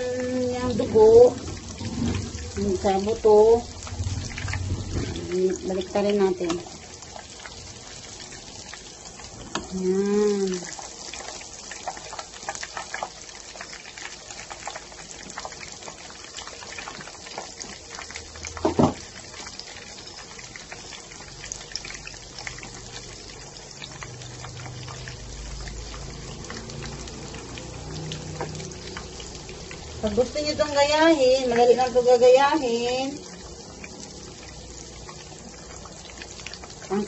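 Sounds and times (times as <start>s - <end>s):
pork chop sizzling in oil: 0.0s - 37.0s
loud dull knock: 18.6s - 19.0s.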